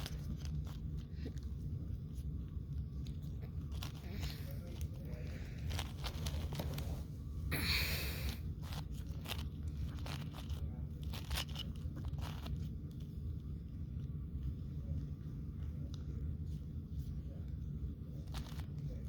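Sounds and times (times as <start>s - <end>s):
steady low hum: 0.0s - 19.0s
puzzle cube scraping turns: 3.0s - 7.1s, 7.7s - 12.7s.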